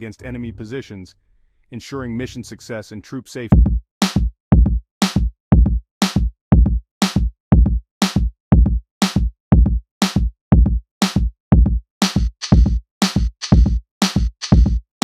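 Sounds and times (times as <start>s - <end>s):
drum machine beat: 3.5s - 15.0s
heavy bass drum: 3.6s - 14.9s
electronic music: 12.2s - 13.8s.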